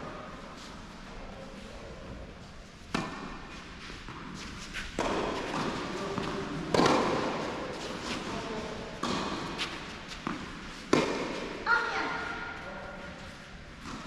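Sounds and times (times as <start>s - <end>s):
racket hitting tennis ball: 2.9s - 8.3s, 9.0s - 11.6s.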